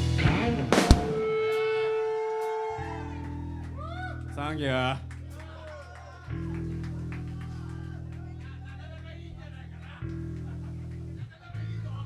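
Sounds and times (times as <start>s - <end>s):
amplified guitar and bass notes: 0.0s - 5.6s, 6.3s - 12.0s.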